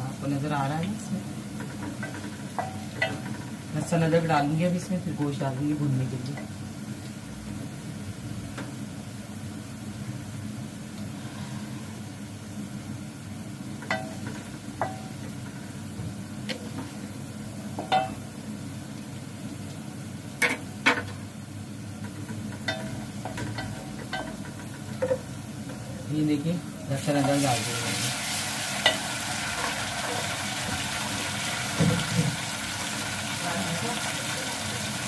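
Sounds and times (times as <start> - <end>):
onions frying in a pot: 0.0 - 35.0
spoon knocking against pot: 17.8 - 18.2.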